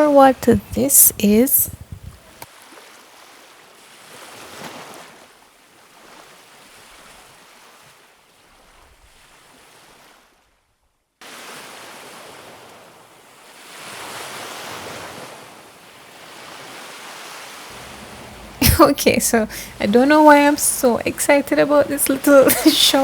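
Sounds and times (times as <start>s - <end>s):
wind on microphone: 0.0s - 2.4s
surf washing onto beach: 11.2s - 23.0s.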